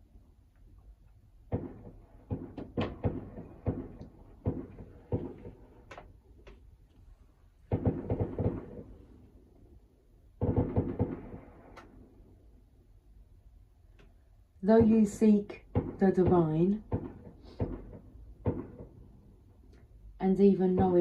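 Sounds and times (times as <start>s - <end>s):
sharp knocks and clicks: 1.5s - 6.6s, 7.7s - 8.9s, 10.4s - 11.9s, 15.7s - 19.0s.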